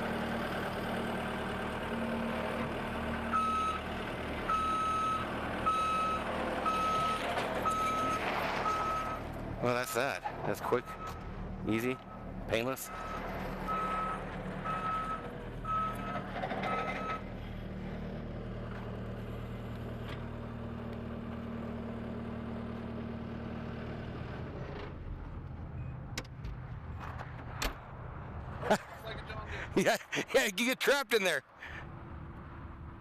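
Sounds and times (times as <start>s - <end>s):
skid steer engine running: 0.0s - 9.6s, 10.3s - 25.8s
reverse alarm beeping: 3.3s - 3.8s, 4.5s - 9.2s, 12.9s - 16.2s.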